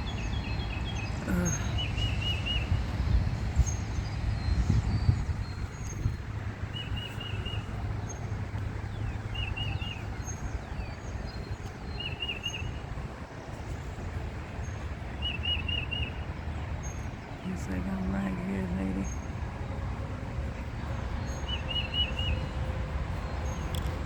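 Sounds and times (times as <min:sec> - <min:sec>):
steady low rumble: 0:00.0 - 0:15.2
songbird warbling phrase: 0:01.1 - 0:02.5, 0:17.3 - 0:19.2.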